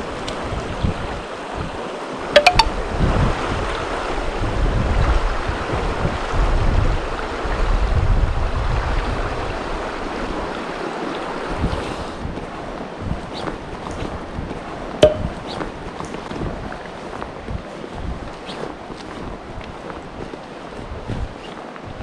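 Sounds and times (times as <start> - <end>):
wind rumbling on microphone: 17.4 - 22.0.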